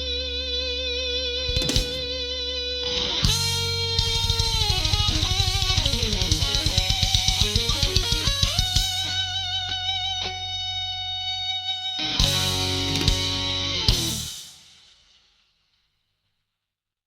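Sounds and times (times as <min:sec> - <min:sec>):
electric guitar with vibrato: 0:01.5 - 0:14.3.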